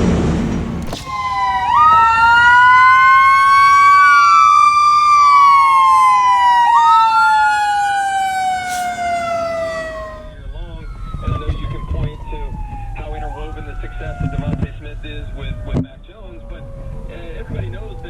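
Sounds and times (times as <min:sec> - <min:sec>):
heavy traffic rumble: 0:00.0 - 0:11.0
sirens wailing: 0:00.1 - 0:18.0.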